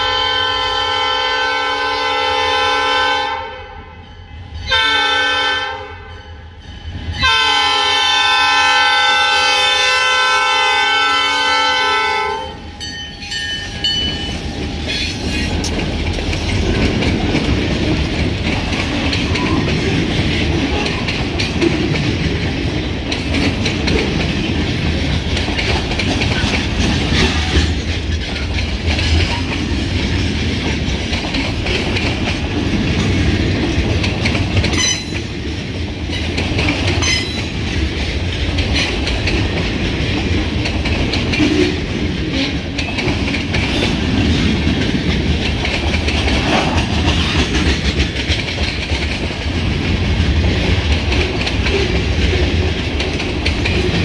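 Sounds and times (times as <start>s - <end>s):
locomotive air horn: 0.0s - 3.8s, 4.7s - 6.1s, 7.2s - 12.6s
freight train rumbling: 0.0s - 54.0s
wheels clacking over rail joints: 12.0s - 54.0s.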